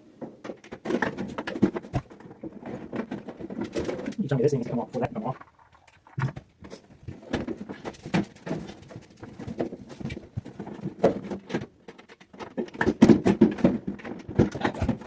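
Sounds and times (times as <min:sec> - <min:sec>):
metal and plastic parts rattling: 0:00.1 - 0:15.0.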